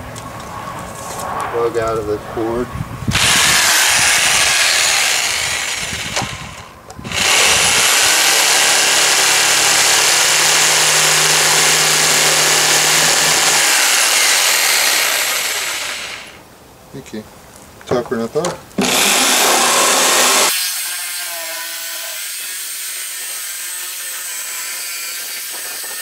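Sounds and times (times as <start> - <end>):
power tool cutting plastic: 3.1 - 16.4, 18.8 - 26.0.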